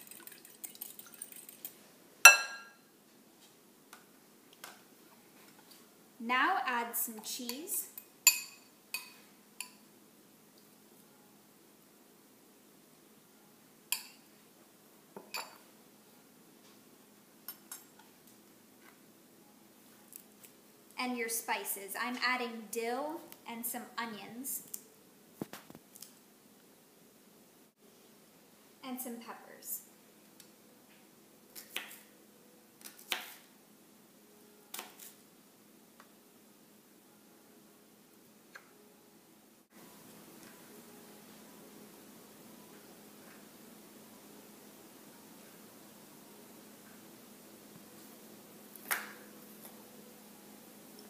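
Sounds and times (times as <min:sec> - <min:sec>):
dishes and utensils clinking: 0:00.6 - 0:02.8, 0:15.2 - 0:15.6, 0:17.5 - 0:18.1.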